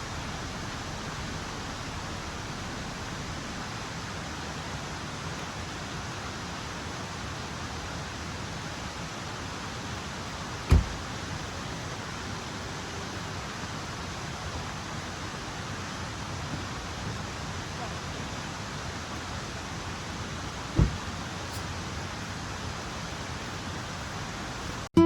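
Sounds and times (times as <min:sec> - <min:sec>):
rushing water: 0:00.0 - 0:24.9
sharp thump: 0:10.7 - 0:11.1, 0:20.8 - 0:21.1.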